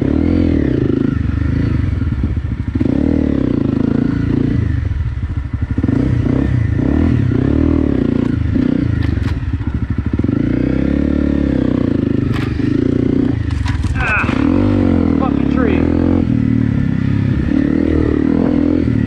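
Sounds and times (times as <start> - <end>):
motorcycle engine revving: 0.0 - 19.0
bike clicks and clatter: 8.1 - 10.3, 12.1 - 14.4.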